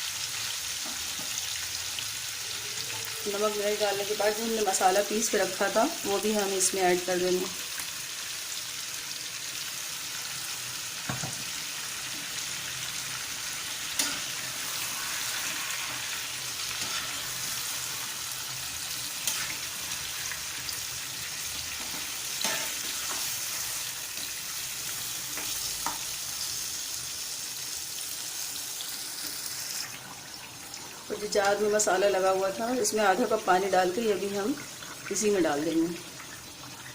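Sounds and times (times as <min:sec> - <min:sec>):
chicken sizzling in hot oil: 0:00.0 - 0:36.9.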